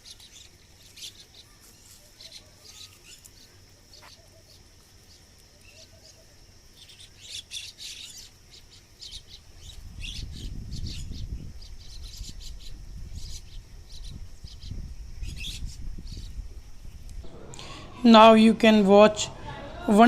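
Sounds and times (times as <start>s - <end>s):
birds chirping: 17.2s - 20.0s
steady high whine: 17.2s - 20.0s.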